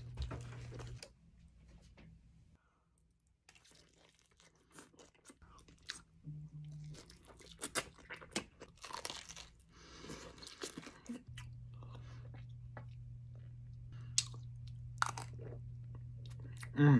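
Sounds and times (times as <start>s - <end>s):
pizza crust crunching: 7.0s - 11.2s.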